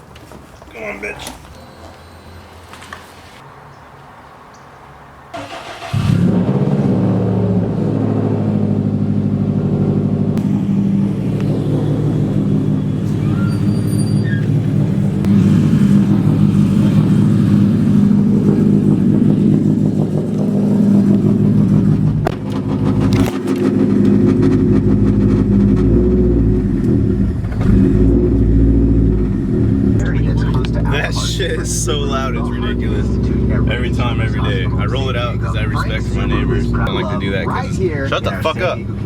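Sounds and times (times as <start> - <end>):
car engine cranking: 5.3 - 7.6, 10.1 - 39.0
car engine idling loudly: 5.6 - 39.0.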